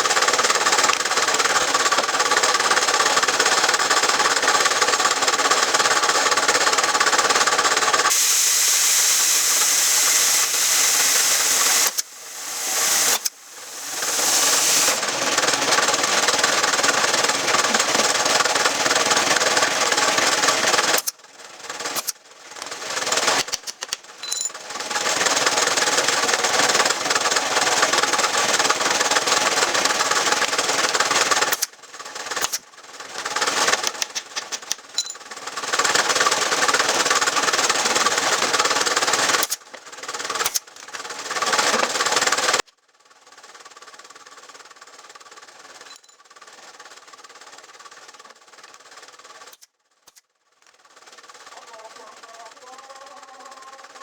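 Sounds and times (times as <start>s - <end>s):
electric power tool running: 0.0s - 23.5s, 24.6s - 34.3s, 35.4s - 42.6s.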